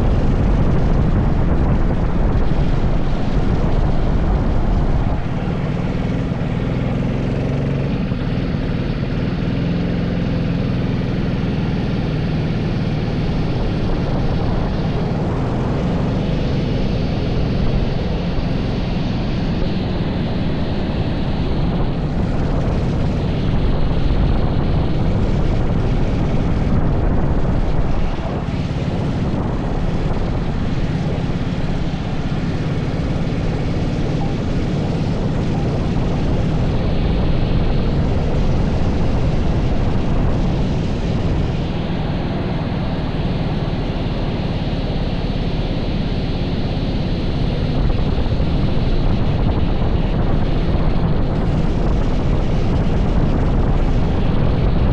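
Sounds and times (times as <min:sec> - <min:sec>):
kart engine revving: 0:00.0 - 0:44.5
rushing noise: 0:00.0 - 0:54.9.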